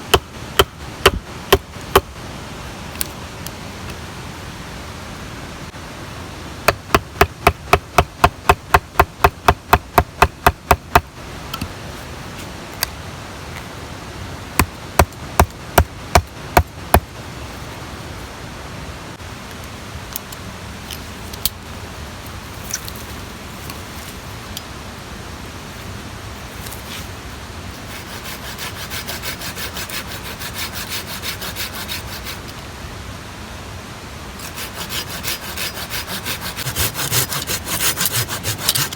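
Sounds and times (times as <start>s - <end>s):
sharp strikes on wood: 0.1s - 2.1s, 6.7s - 11.1s
hand saw cutting wood: 27.8s - 32.5s, 34.4s - 38.9s.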